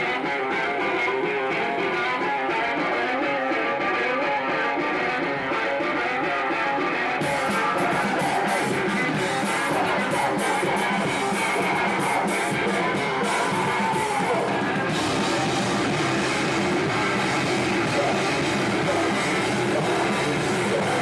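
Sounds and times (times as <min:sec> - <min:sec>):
electric guitar: 0:00.0 - 0:21.0
hardcore band playing: 0:00.0 - 0:21.0
drums and cymbals: 0:07.2 - 0:21.0.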